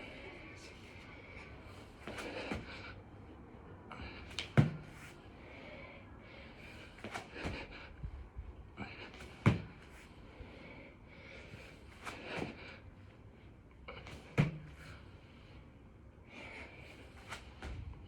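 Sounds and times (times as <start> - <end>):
person breathing hard: 0.0 - 3.1, 5.3 - 13.3, 13.9 - 17.6
thud against the floor: 9.5 - 9.7.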